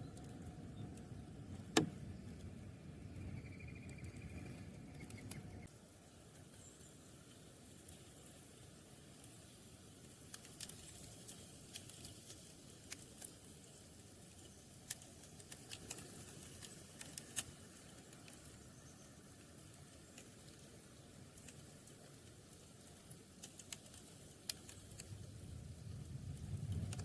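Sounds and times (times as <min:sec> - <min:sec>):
background hiss: 0:00.0 - 0:27.0
sharp ticks and clicks: 0:21.3 - 0:27.0.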